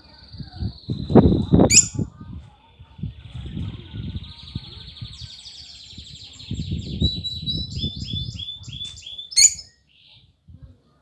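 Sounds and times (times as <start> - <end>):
bird singing: 0.0 - 2.0, 4.0 - 10.2.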